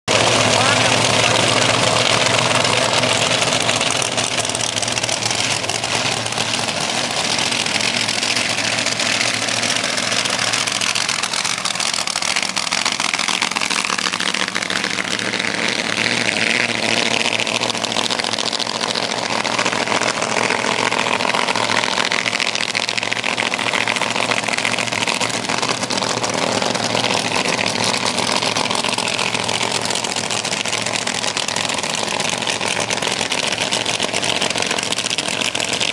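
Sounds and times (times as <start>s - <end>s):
loud racing engine: 0.1s - 35.9s.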